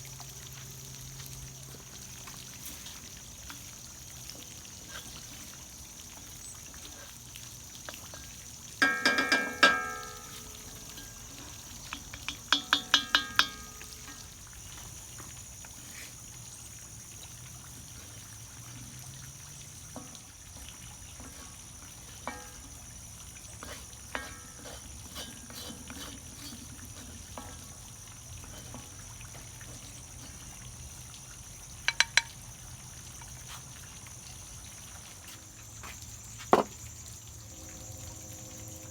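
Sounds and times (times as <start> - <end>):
metal utensil clanking on cookware: 7.9 - 14.4, 21.1 - 30.0, 31.9 - 32.4
steady high hiss: 8.8 - 16.2.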